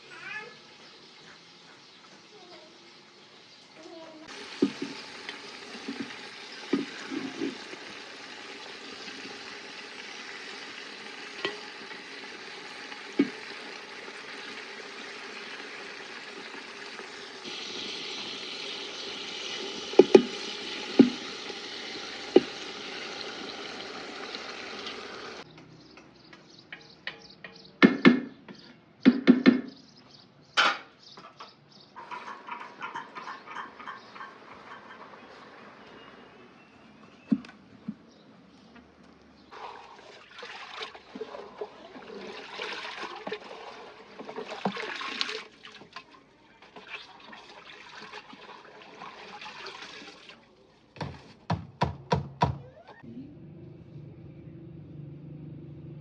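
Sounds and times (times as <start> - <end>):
food sizzling in a pot: 0.0 - 25.4
utensil knocking against pot: 19.9 - 21.3, 22.4 - 22.6.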